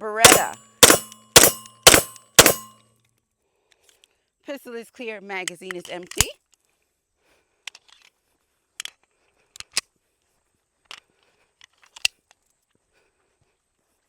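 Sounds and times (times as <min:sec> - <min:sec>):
metallic clicks of pistol handling: 0:05.4 - 0:06.3, 0:07.6 - 0:08.1, 0:08.8 - 0:09.9, 0:10.9 - 0:12.4.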